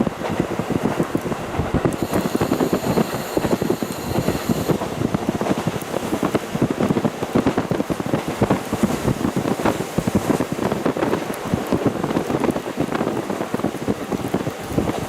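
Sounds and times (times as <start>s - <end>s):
train running noise: 0.0s - 15.0s
wind buffeting microphone: 0.0s - 15.0s
faint high-pitched tone: 2.0s - 4.8s.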